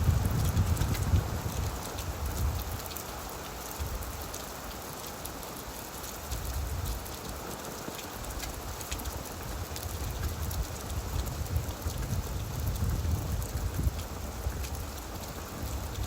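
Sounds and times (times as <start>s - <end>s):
rain falling on leaves: 0.0s - 16.0s.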